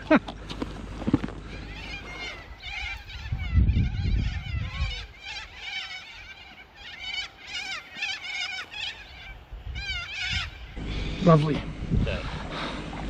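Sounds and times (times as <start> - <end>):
birds chirping and singing: 0.5 - 12.8.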